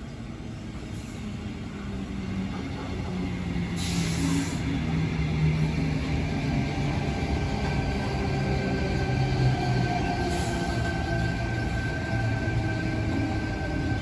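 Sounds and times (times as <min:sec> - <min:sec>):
electric train pulling in: 0:00.1 - 0:14.0
air hiss: 0:03.7 - 0:04.7.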